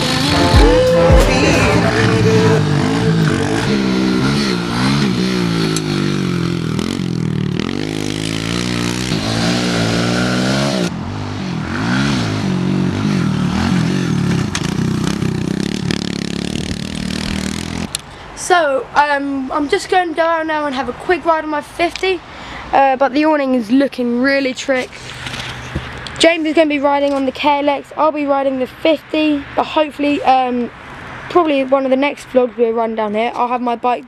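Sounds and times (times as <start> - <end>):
pit bike engines revving: 0.0 - 18.2.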